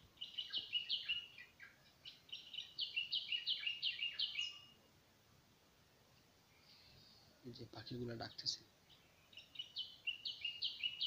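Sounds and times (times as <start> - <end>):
small birds chirping: 0.0 - 5.0, 6.0 - 11.0.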